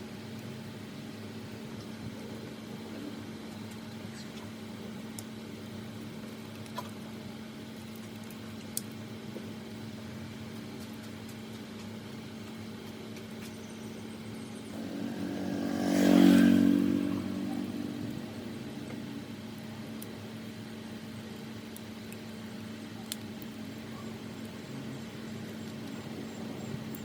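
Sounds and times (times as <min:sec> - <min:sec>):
steady low hum: 0:00.0 - 0:27.0
motor vehicle passing by: 0:14.7 - 0:19.5.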